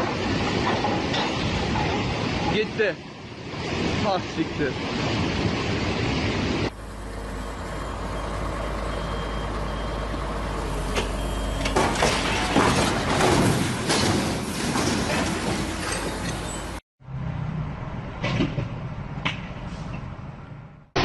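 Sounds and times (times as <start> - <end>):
heavy vehicle engine rumbling: 5.4 - 21.0
loud knocks and clatter: 11.6 - 16.5, 18.2 - 19.6.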